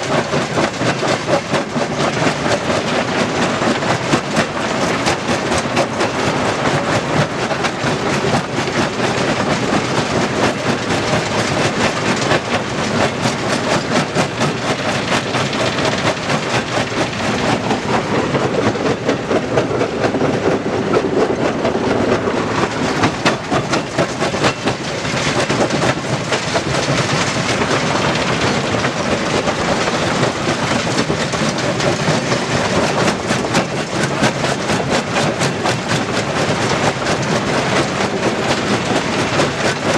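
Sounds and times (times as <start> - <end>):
stone crusher clattering: 22.7 - 29.0.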